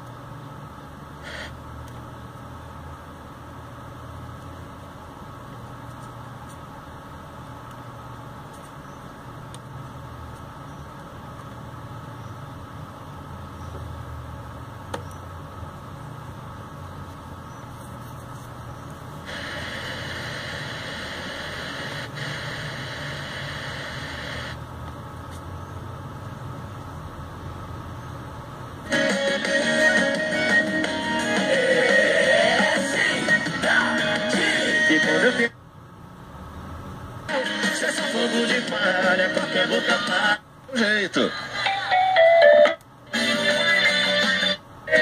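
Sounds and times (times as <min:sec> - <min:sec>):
radio static hiss: 0:01.1 - 0:01.7, 0:17.8 - 0:24.6, 0:37.3 - 0:41.9.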